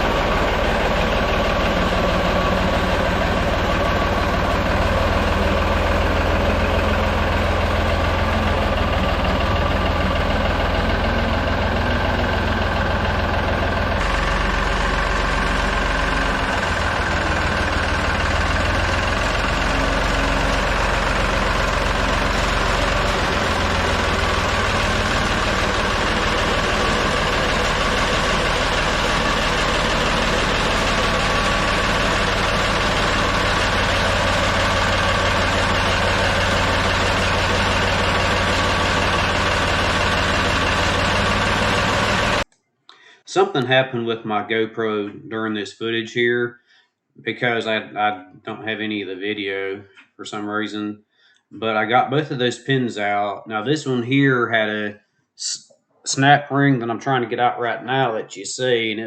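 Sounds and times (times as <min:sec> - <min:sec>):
backhoe engine idling: 0:00.0 - 0:42.5.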